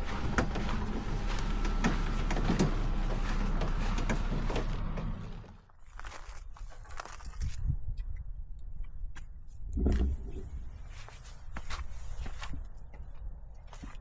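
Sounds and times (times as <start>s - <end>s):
mechanical hum: 0.0s - 5.4s
knocks and clatter: 0.0s - 5.6s.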